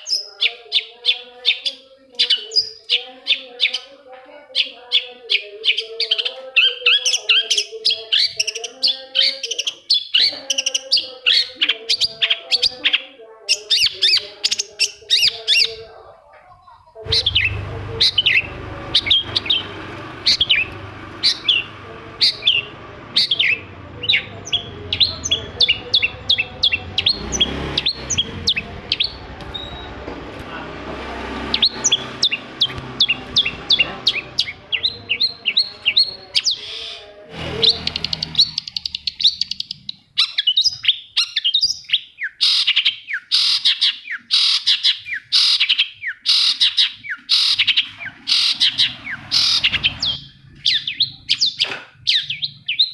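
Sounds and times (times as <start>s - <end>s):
low background rumble: 17.0s - 36.3s
bird singing sharp notes: 17.1s - 30.1s, 31.3s - 41.0s.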